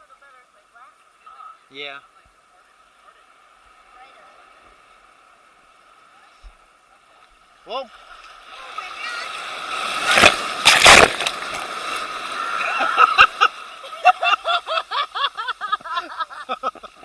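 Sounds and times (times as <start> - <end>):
wave breaking: 7.6 - 15.2
water gurgling and bubbling: 8.6 - 12.9.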